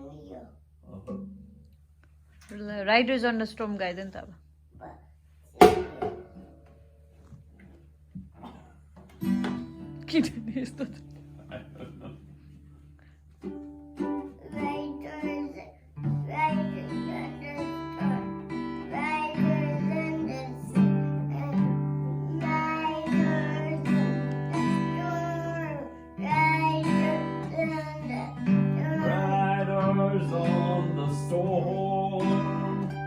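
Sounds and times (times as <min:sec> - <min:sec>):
acoustic guitar strumming: 0:05.6 - 0:07.1, 0:09.0 - 0:33.0
child singing: 0:14.4 - 0:33.0.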